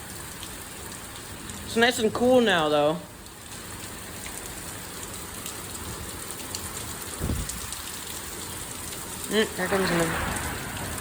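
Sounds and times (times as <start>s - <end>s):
steady rain falling: 0.0s - 11.0s
low thunder rumble: 9.8s - 11.0s.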